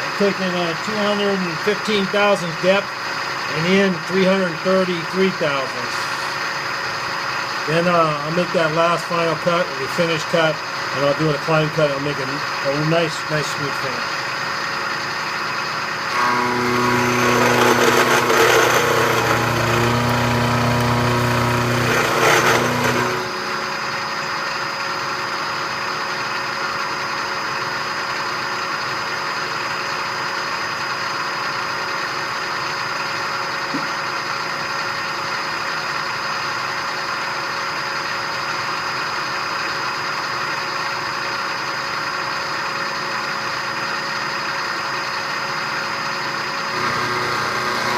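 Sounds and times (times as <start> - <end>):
low buzz: 13.9 - 25.8, 46.6 - 47.9
milling machine humming and whining: 14.0 - 25.6, 46.0 - 47.9.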